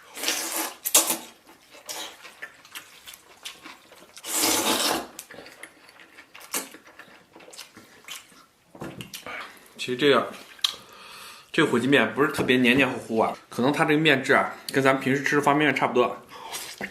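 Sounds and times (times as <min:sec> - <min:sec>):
loud noodle slurps: 0:00.1 - 0:02.2, 0:04.2 - 0:05.2
chewing and mouth sounds: 0:00.2 - 0:09.7, 0:10.4 - 0:11.0.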